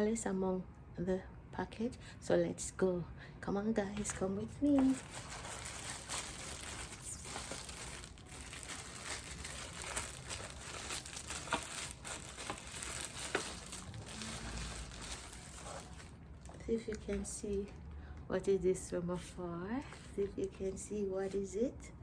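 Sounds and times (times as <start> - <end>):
package crinkling and rustling: 4.0 - 16.6.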